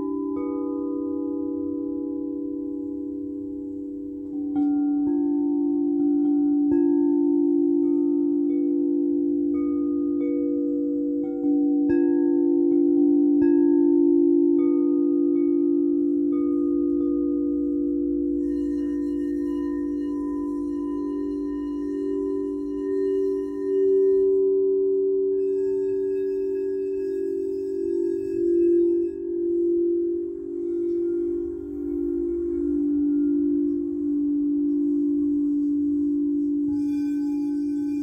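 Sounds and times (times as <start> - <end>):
singing bowl humming: 0.0 - 38.0
bright metal tone: 16.0 - 38.0.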